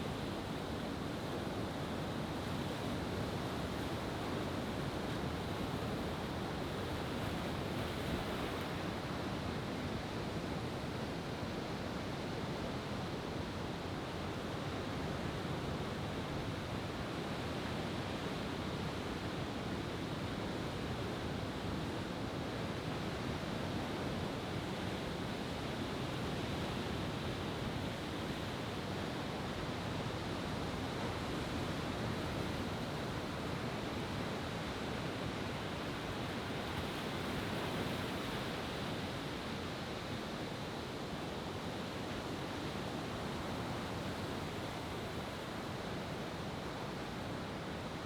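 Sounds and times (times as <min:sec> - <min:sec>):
wind: 0:00.0 - 0:48.0.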